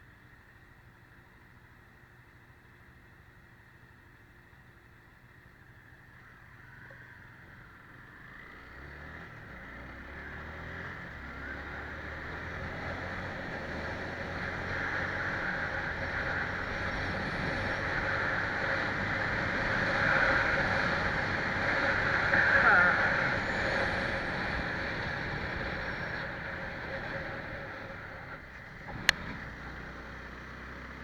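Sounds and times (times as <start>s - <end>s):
road and wind noise: 0.0s - 31.0s
vehicle engine pulling away: 6.3s - 31.0s.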